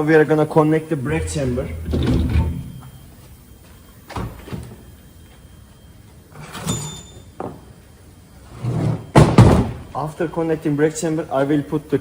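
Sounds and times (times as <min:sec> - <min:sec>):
heavy metal parts clunking: 0:01.1 - 0:03.1.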